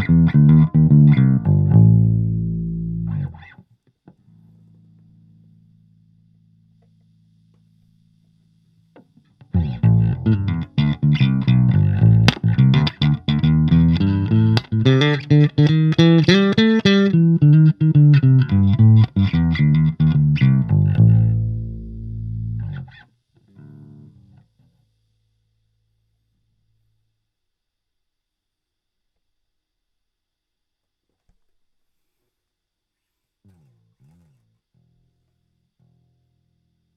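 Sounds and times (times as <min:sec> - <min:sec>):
electric bass plucked notes: 0:00.0 - 0:03.5, 0:09.6 - 0:23.0.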